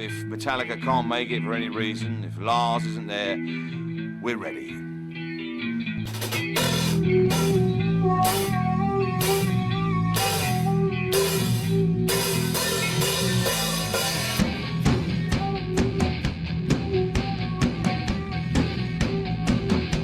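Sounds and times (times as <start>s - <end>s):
rock band playing: 6.0s - 20.0s
cymbal crashes: 6.1s - 14.7s.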